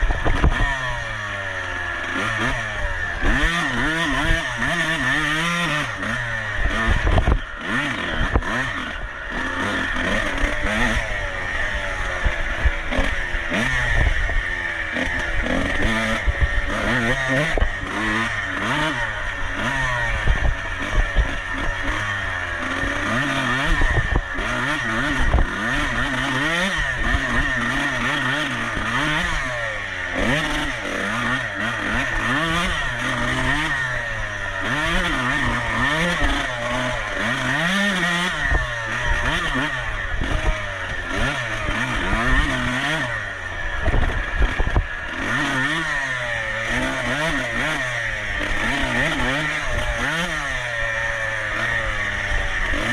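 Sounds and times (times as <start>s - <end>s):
dirt bike engine racing: 0.0s - 52.9s.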